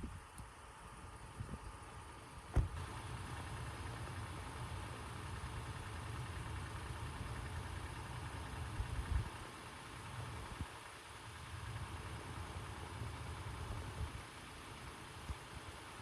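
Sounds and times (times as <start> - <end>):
car engine running: 0.4 - 16.0
sharp thump: 2.5 - 2.8.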